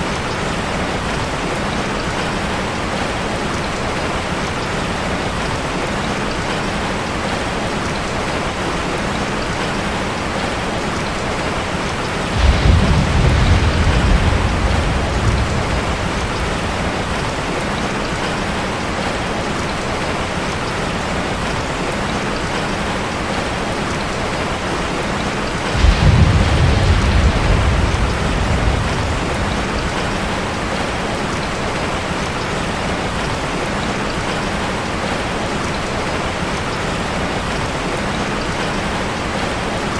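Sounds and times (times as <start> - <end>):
rain drumming on a metal roof: 0.0 - 39.9
low rolls of thunder: 11.4 - 18.6, 25.6 - 32.2.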